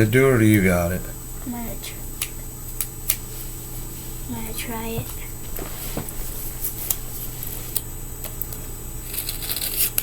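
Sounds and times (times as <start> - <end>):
grip tape rasping scrape: 9.1 - 10.0.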